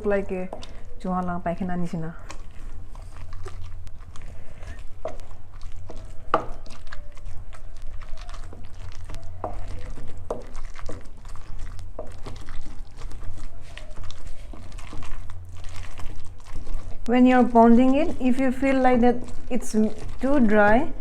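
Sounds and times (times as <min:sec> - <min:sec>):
pestle pounding in a mortar: 0:04.8 - 0:21.0.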